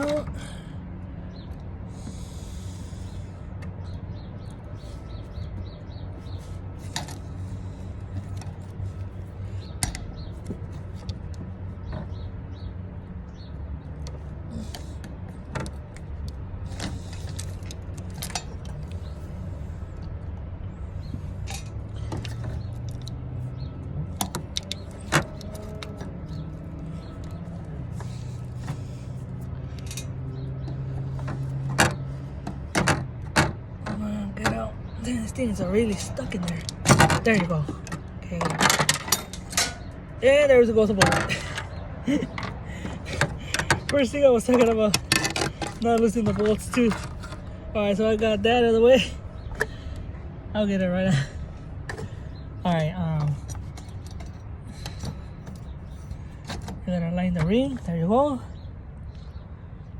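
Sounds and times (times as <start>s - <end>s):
steady low hum: 0.0s - 59.9s
clicks and knocks on plastic fittings: 41.0s - 47.5s.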